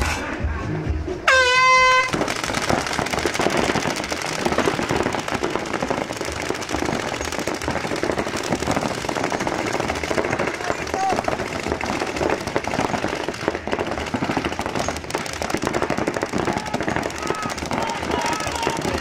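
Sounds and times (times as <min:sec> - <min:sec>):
air horn blast: 0:01.3 - 0:02.2
paintball markers firing: 0:02.1 - 0:19.0.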